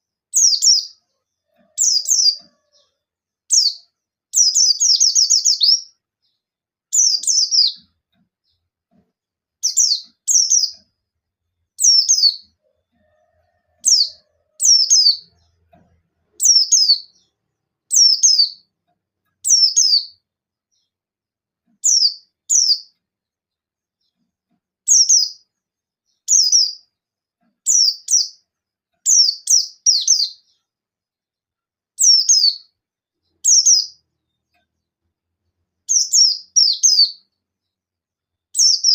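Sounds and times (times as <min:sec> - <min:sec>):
bird singing high rapid phrases: 0:00.3 - 0:08.7, 0:09.6 - 0:12.6, 0:13.8 - 0:15.6, 0:16.4 - 0:18.7, 0:19.3 - 0:21.0, 0:21.8 - 0:23.0, 0:24.9 - 0:27.0, 0:27.6 - 0:28.4, 0:29.0 - 0:30.7, 0:32.0 - 0:34.6, 0:35.8 - 0:37.3, 0:38.4 - 0:38.9.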